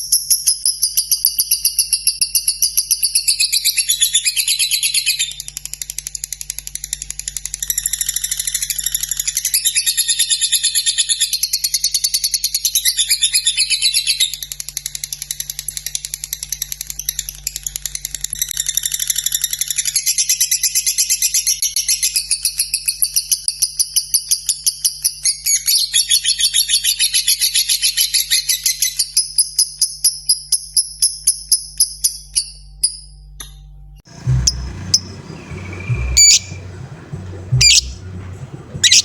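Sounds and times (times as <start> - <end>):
lovebird chattering trill: 34.1 - 39.0.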